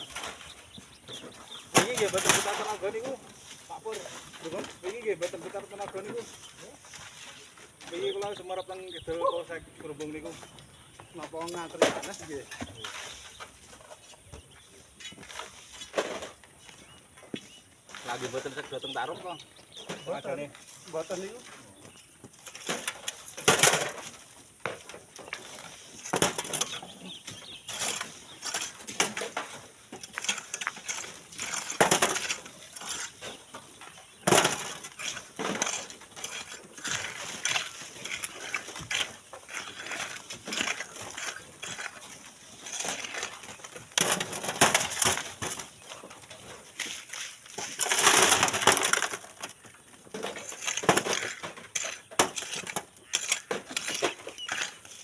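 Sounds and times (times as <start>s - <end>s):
shovels crunching into gravel: 0.0s - 8.2s, 11.1s - 14.2s, 14.9s - 55.0s
stones clinking on metal: 25.4s - 45.9s, 46.7s - 55.0s.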